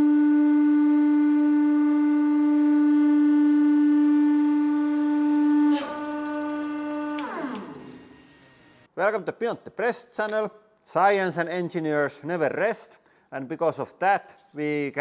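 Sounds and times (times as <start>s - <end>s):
pitched drone with overtones: 0.0s - 8.9s.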